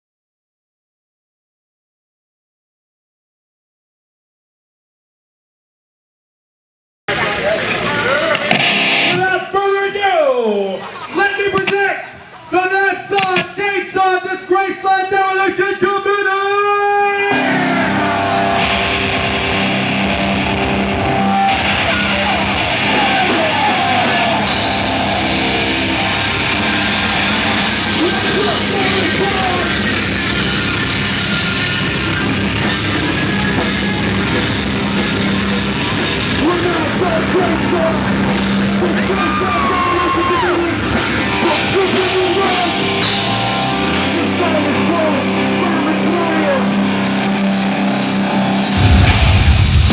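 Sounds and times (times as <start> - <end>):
drums: 7.1 - 9.5, 13.2 - 13.6, 17.3 - 49.9
distorted guitar: 7.1 - 9.6, 11.5 - 12.2, 13.1 - 13.6, 17.3 - 49.9.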